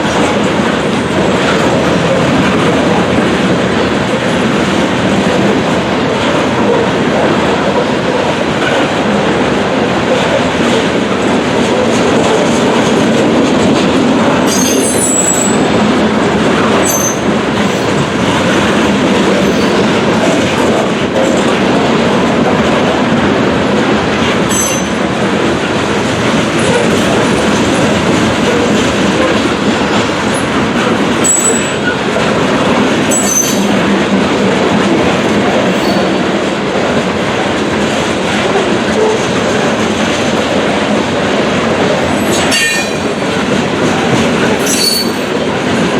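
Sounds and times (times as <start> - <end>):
train wheels rumbling on rail: 0.0 - 45.9
high-pitched wheel squeals: 14.5 - 15.6, 16.8 - 17.3, 31.2 - 32.0, 33.1 - 33.7, 42.3 - 43.2, 44.6 - 45.3.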